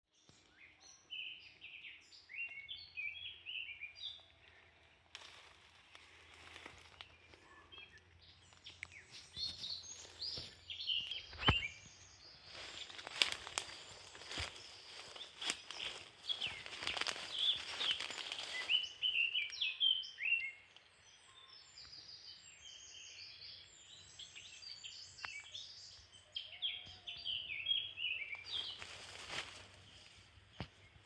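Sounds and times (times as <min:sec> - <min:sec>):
small songbirds chirping: 0:00.1 - 0:31.0
footsteps rustling in undergrowth: 0:05.1 - 0:07.7, 0:08.7 - 0:19.4, 0:28.2 - 0:31.0.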